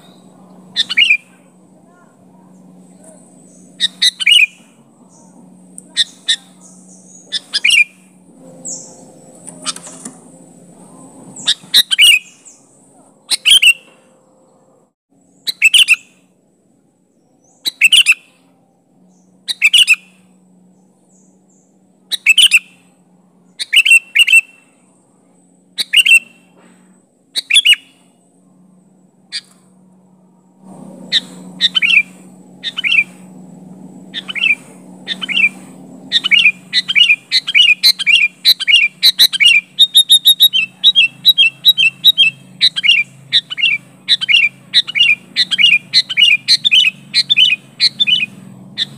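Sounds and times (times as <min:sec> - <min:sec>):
bulbul calling: 0:00.0 - 0:01.6, 0:02.4 - 0:10.2, 0:10.9 - 0:14.2, 0:15.3 - 0:16.2, 0:17.4 - 0:18.4, 0:19.1 - 0:20.4, 0:21.1 - 0:22.8, 0:23.5 - 0:24.8, 0:25.7 - 0:26.6, 0:27.3 - 0:28.1, 0:31.0 - 0:48.9.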